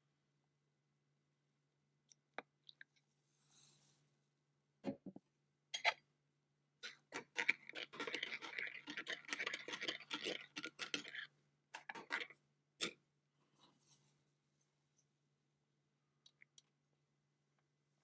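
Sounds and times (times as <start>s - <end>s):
hard objects clicking and knocking: 11.8s - 12.3s.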